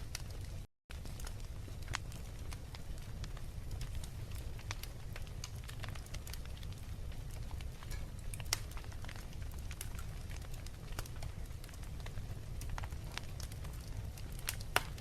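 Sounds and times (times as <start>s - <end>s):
fire low rumble: 0.0s - 15.0s
fireplace fire crackling: 0.0s - 15.0s.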